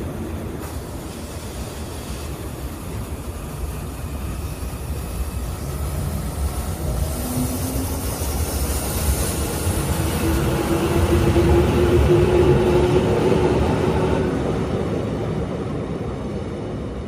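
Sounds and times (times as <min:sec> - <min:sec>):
train rumbling on tracks: 0:00.0 - 0:17.0.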